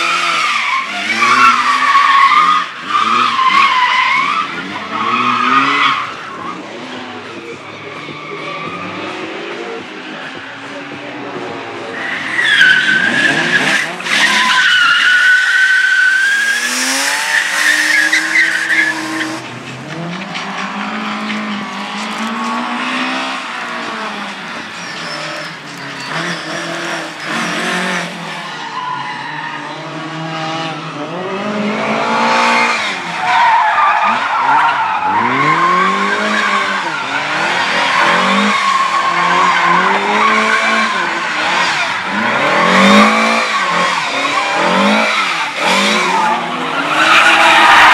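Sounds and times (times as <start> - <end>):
car engine revving: 11.4 - 47.9
tyres squealing: 11.9 - 30.0, 32.5 - 47.9.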